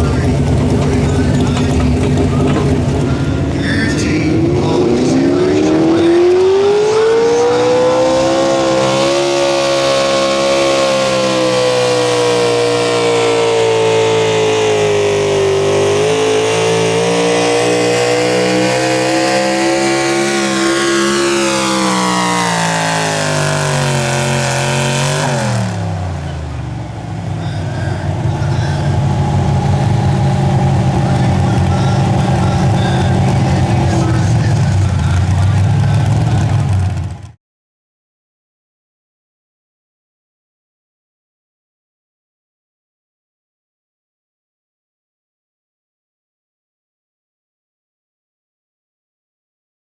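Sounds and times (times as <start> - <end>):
lower engine running steadily: 0.0 - 6.5, 10.0 - 37.4
engine at full throttle: 0.0 - 37.4.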